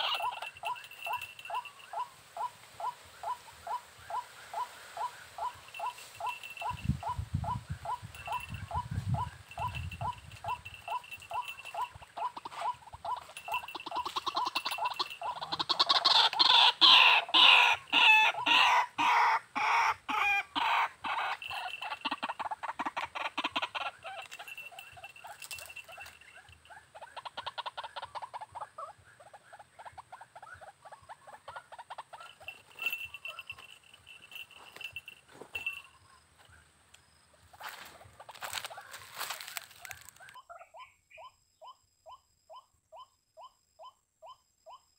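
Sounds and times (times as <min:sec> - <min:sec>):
waterhen calling harsh notes: 0:00.0 - 0:26.1.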